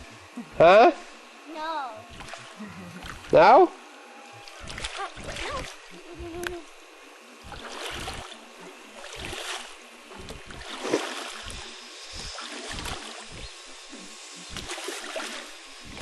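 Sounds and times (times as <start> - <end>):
paddle strokes in water: 4.4 - 6.5, 7.4 - 16.0.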